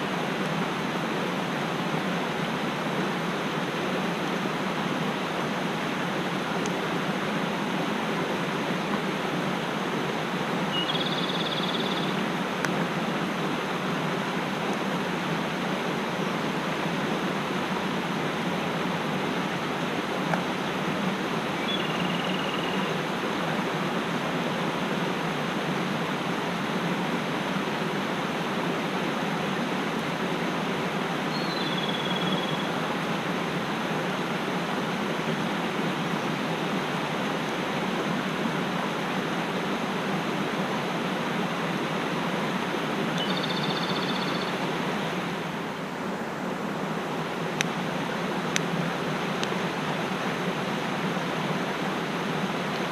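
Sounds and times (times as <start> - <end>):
mountain stream rushing: 0.0 - 52.9
bird whistling: 10.7 - 12.1, 21.6 - 22.9, 31.3 - 32.7, 43.2 - 44.5.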